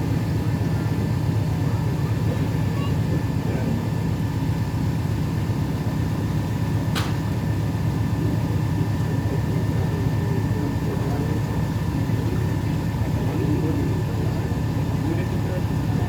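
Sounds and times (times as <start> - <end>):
boat motor droning: 0.0 - 16.0
brief click: 7.0 - 7.2.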